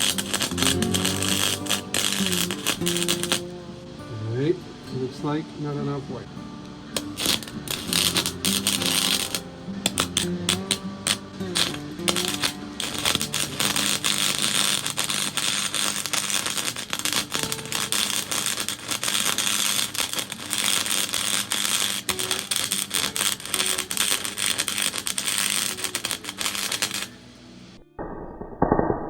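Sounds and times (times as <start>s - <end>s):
welder arc crackling: 0.0s - 3.7s, 6.9s - 27.8s.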